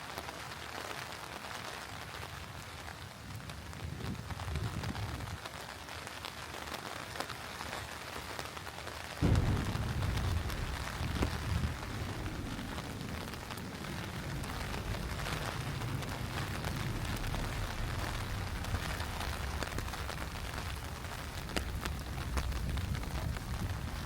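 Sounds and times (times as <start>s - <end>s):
rain pattering: 0.0s - 24.0s
thunder rumbling: 9.2s - 24.0s.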